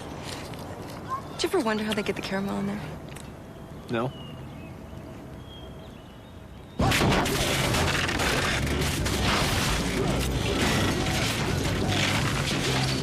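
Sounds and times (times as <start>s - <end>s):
truck crashing and smashing: 6.8s - 13.0s.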